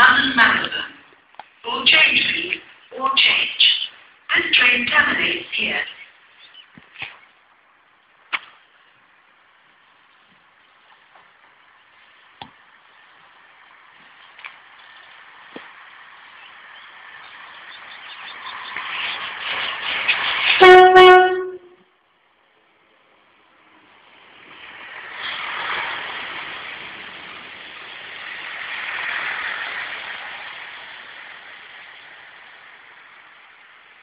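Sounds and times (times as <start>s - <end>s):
train coaches running past: 0.0s - 34.0s
train engine and wheel noise: 0.0s - 34.0s
train horn blast: 20.5s - 21.9s.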